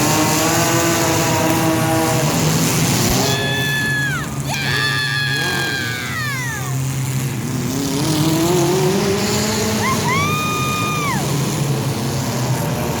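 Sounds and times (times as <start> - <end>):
car engines revving: 0.0 - 13.0
high-pitched squeals sliding down: 3.2 - 6.9, 9.7 - 11.4.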